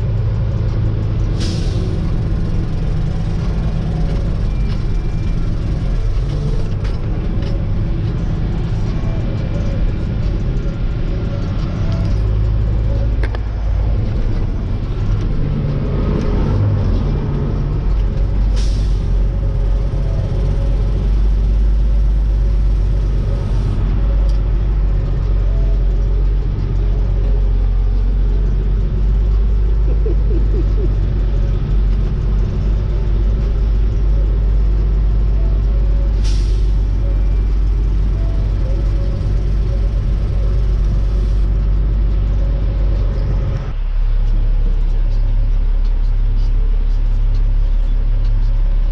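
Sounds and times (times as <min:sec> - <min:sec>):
diesel truck engine rumble: 0:00.0 - 0:48.9
air brake hisses: 0:01.4 - 0:02.1, 0:36.2 - 0:37.0.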